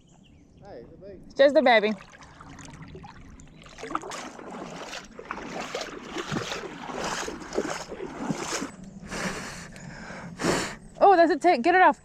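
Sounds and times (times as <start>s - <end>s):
river water splashing: 1.7s - 9.6s.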